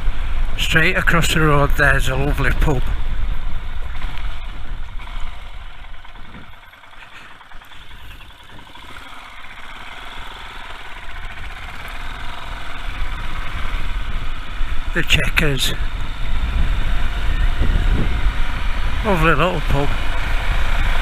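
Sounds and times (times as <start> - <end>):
motorcycle engine running: 0.0 - 21.0
wind noise: 12.9 - 21.0.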